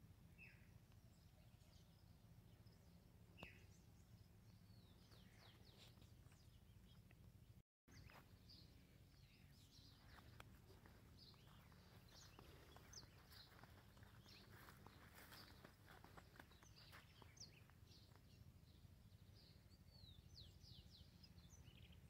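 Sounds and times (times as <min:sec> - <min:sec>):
low background hum: 0:00.0 - 0:22.0
faint small-bird chirps: 0:00.3 - 0:07.2.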